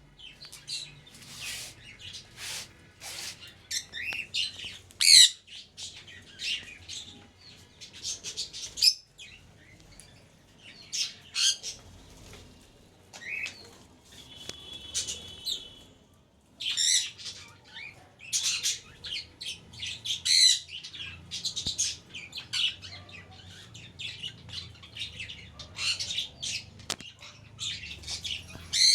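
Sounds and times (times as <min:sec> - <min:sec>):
budgerigars chirping and squawking: 0:01.3 - 0:07.1, 0:16.7 - 0:28.9.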